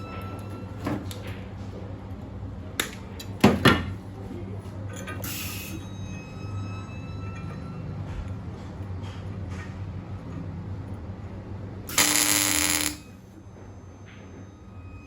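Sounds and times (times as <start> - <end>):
steady electrical hum: 11.8 - 13.4.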